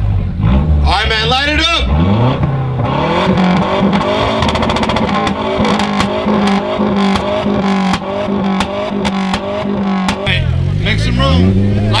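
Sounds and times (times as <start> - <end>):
car engine on rev limiter: 0.0 - 12.0
exhaust pops and bangs: 2.3 - 10.6.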